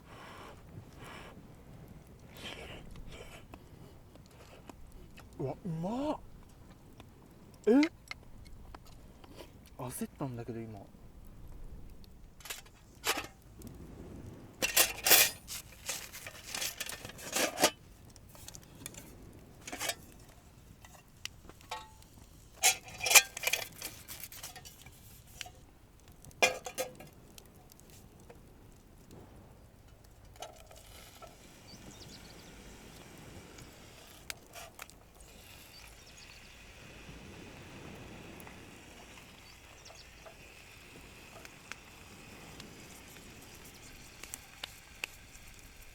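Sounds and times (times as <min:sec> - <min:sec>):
cutlery and cookware clinking: 0:14.6 - 0:17.8, 0:22.6 - 0:24.8.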